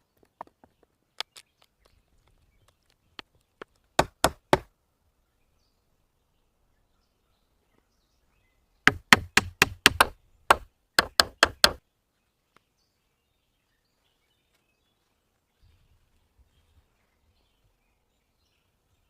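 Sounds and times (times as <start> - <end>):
tool knocking on wood: 4.0 - 4.7, 8.9 - 11.8.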